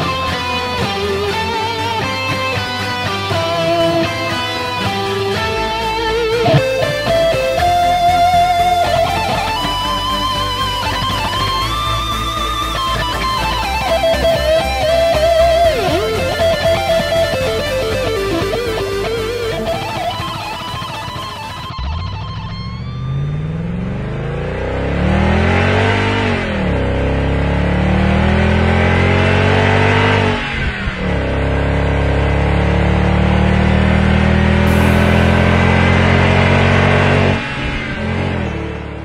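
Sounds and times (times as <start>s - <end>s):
car engine accelerating: 0.0s - 39.0s
electric guitar music: 0.0s - 39.0s.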